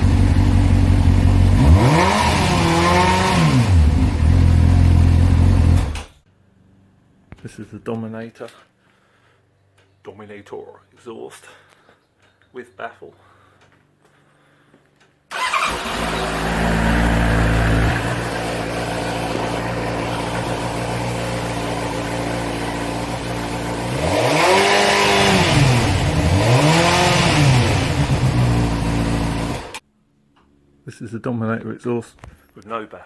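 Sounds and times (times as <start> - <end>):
motorcycle engine idling and revving: 0.0 - 6.2, 15.3 - 29.8.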